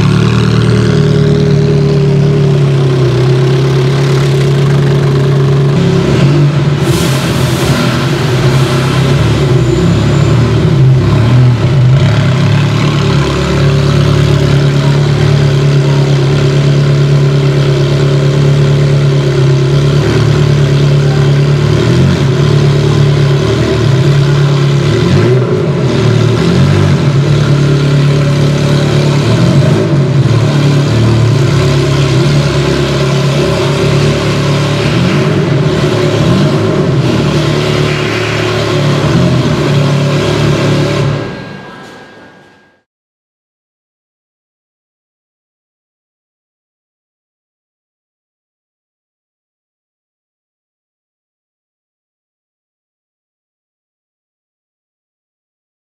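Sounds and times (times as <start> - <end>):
car engine at low revs: 0.0 - 41.6.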